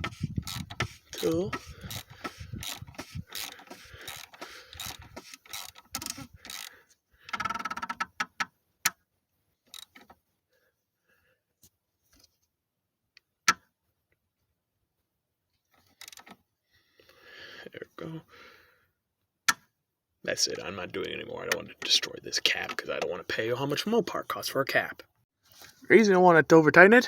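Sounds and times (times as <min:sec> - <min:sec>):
ratchet wrench clicking: 0:00.0 - 0:06.7.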